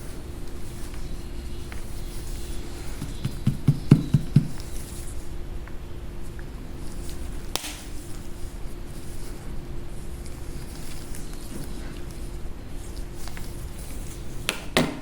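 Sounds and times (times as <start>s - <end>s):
dull knocks: 3.0s - 4.7s.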